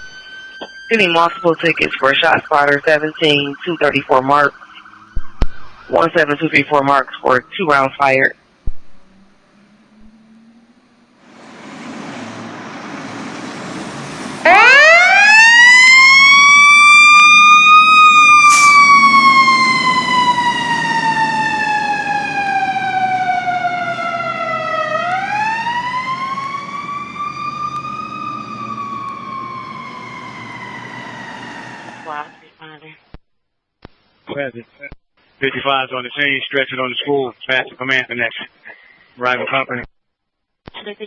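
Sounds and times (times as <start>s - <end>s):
road noise: 0.0s - 6.0s, 8.4s - 32.4s
fire engine siren: 0.0s - 7.4s, 9.0s - 32.5s
truck engine: 9.0s - 32.4s.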